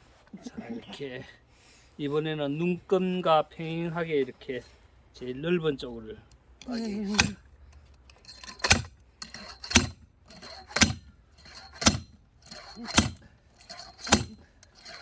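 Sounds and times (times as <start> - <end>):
metallic clank: 6.8 - 7.4, 8.1 - 15.0
axe striking firewood: 7.1 - 7.4, 8.6 - 9.0, 9.6 - 10.0, 10.6 - 12.2, 12.8 - 13.2, 14.0 - 14.4.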